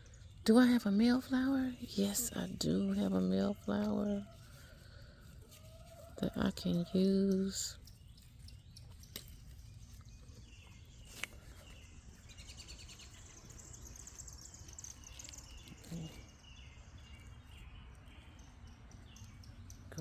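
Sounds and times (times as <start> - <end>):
songbird chirping trills: 0.0 - 20.0.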